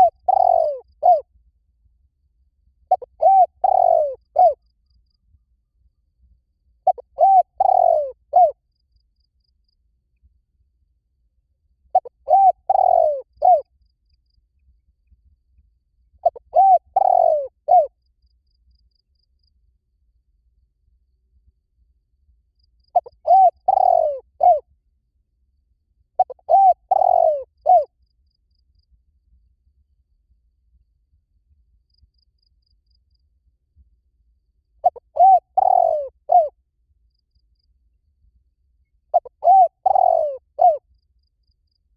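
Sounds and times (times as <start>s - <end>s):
dove cooing: 0.0s - 1.2s, 2.9s - 4.6s, 6.8s - 8.6s, 11.9s - 13.6s, 16.2s - 17.9s, 22.9s - 24.6s, 26.2s - 27.9s, 34.8s - 36.6s, 39.1s - 40.8s.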